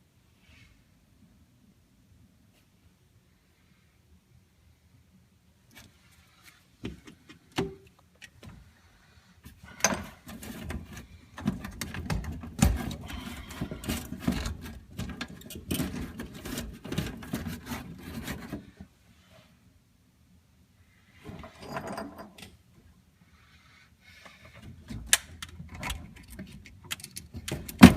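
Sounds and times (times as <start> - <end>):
clicks and knocks of handling: 9.8 - 18.6, 24.6 - 27.9.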